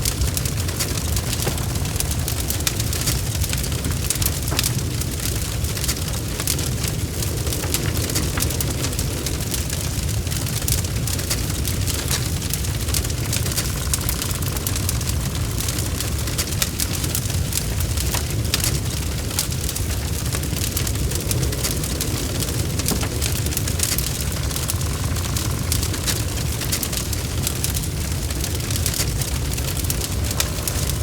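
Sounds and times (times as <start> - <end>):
fireplace fire crackling: 0.0 - 31.0.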